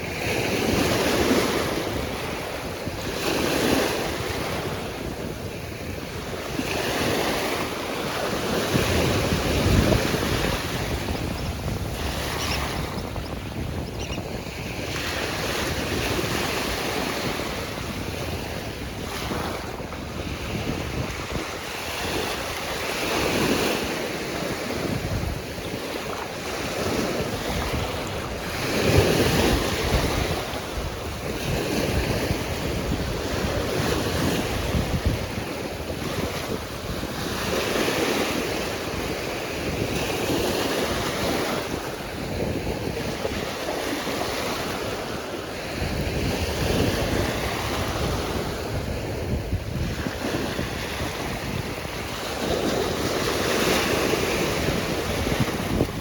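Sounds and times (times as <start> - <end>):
waves breaking: 0.0 - 56.0
wind buffeting microphone: 0.0 - 56.0.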